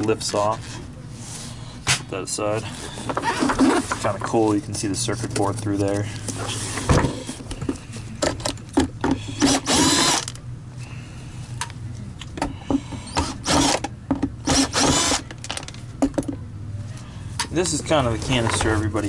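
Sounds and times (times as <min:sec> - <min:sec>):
power drill running: 0:09.4 - 0:10.3, 0:13.2 - 0:13.8, 0:14.4 - 0:15.2.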